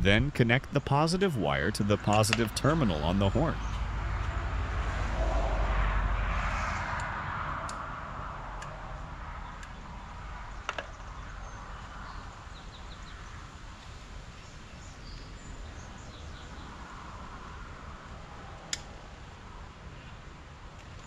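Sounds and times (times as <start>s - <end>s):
birds chirping: 0.0s - 4.0s
passing vehicle: 1.4s - 12.6s.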